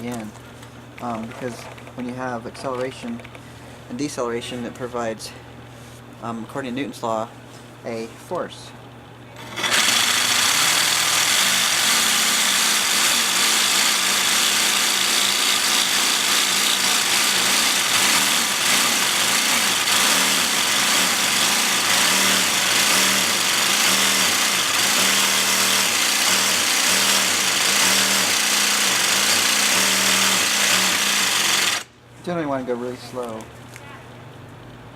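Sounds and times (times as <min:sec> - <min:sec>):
jigsaw cutting ceramic tile: 0:09.4 - 0:31.9.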